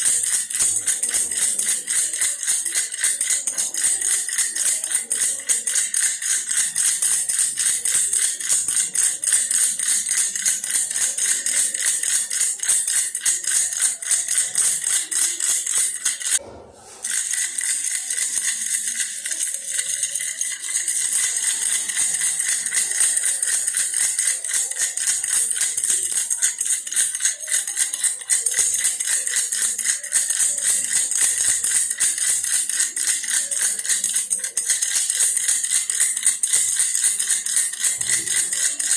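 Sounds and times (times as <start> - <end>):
toy rattle shaken fast: 0.0 - 38.9.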